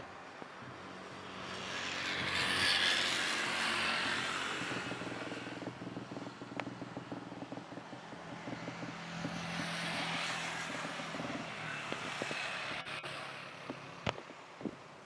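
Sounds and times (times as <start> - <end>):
jet airliner roar: 0.6 - 6.8.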